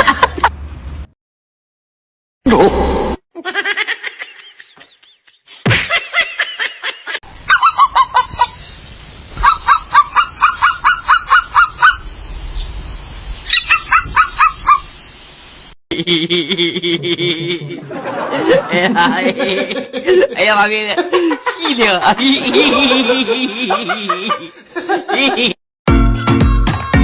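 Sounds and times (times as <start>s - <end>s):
bird calls: 7.4s - 15.5s.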